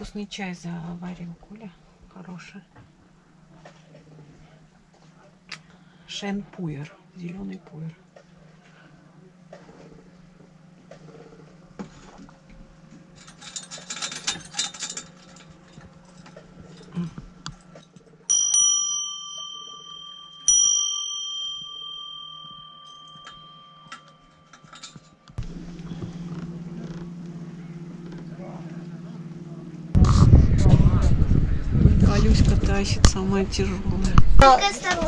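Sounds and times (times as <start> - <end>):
steady low hum: 0.0 - 35.0
small bell ringing: 18.3 - 25.2.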